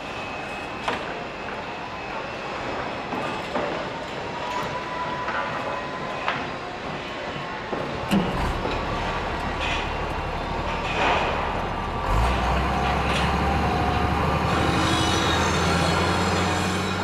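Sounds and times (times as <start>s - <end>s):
heavy machinery engine rumbling: 8.0s - 17.0s.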